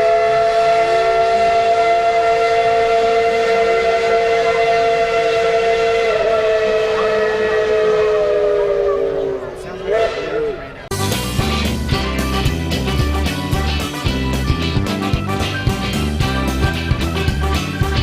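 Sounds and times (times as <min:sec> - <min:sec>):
steam locomotive whistle blast: 0:00.0 - 0:13.6.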